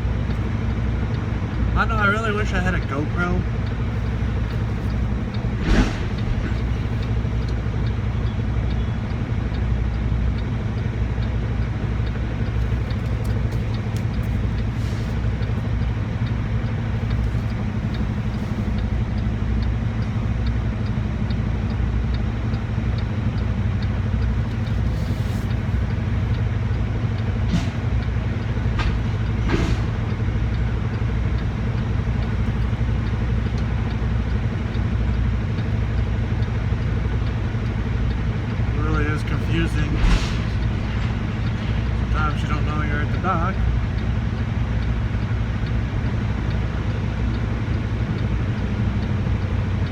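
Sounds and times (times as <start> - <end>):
truck diesel engine at low revs: 0.0 - 49.9.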